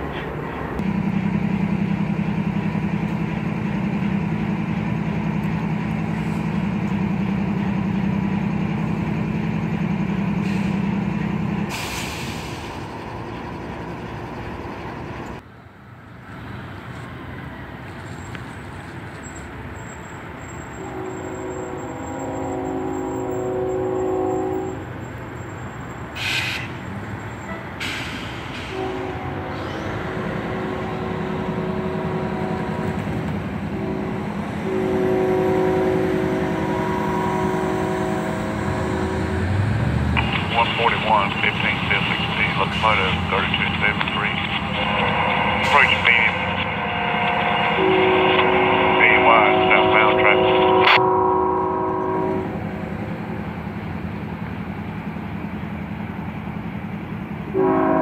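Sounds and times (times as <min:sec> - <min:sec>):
diesel locomotive engine drone: 0:00.0 - 0:58.0
locomotive air horn blasts: 0:20.8 - 0:24.9, 0:28.7 - 0:33.1, 0:33.7 - 0:39.4, 0:44.7 - 0:52.5, 0:57.5 - 0:58.0.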